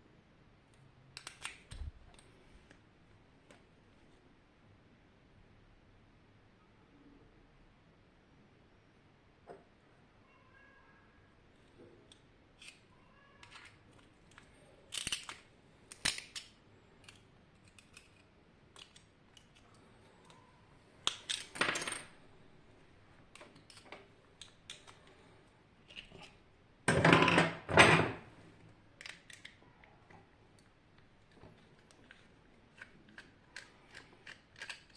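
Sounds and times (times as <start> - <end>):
metal parts and tools clinking: 13.4 - 20.4, 21.0 - 22.2, 23.3 - 25.0, 32.0 - 34.9.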